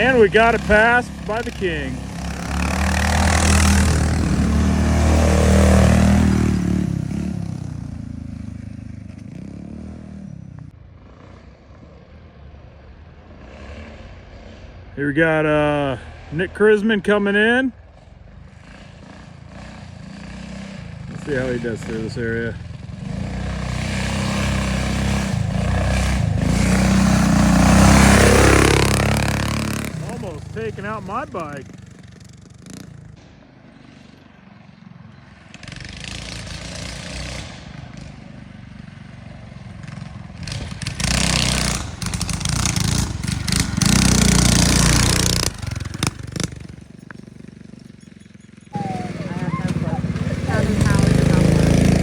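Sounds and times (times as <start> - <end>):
motorbike engine passing by: 0.0 - 52.0.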